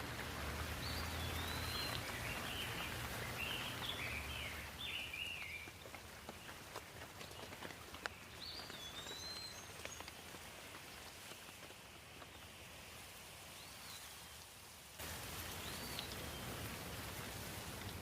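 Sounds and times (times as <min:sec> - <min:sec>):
light rain falling: 0:00.0 - 0:18.0
bird chirping: 0:00.8 - 0:06.6, 0:07.2 - 0:10.2.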